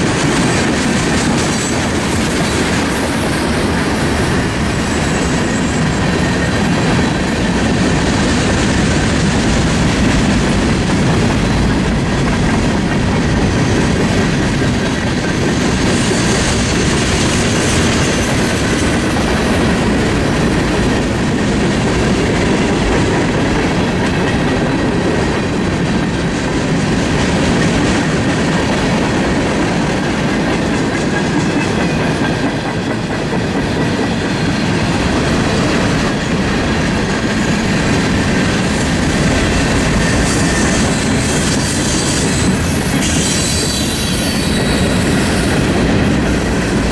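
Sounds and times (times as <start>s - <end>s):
freight train cars rolling past: 0.0s - 46.9s
wheels clacking over rail joints: 0.0s - 46.9s.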